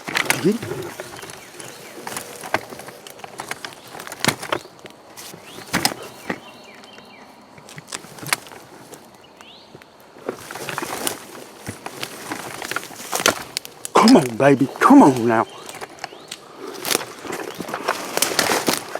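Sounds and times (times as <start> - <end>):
faint bird calls: 0.0 - 9.8, 13.7 - 18.2
dry leaves and twigs crackling: 0.0 - 18.9.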